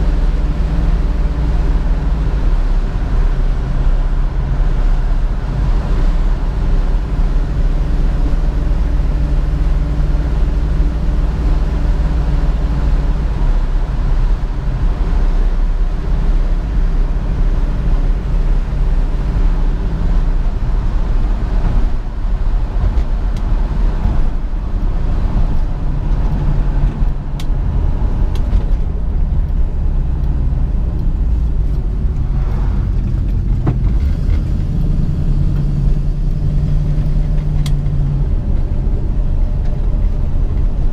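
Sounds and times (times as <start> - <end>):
car engine running while driving: 0.0 - 40.9
road and wind noise: 0.0 - 40.9.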